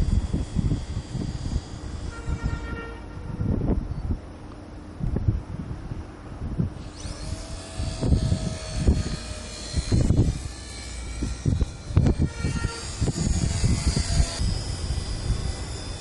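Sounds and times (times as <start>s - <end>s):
model plane motor whining: 0.0s - 2.9s, 6.8s - 16.0s
wind buffeting microphone: 0.0s - 4.3s, 5.0s - 16.0s.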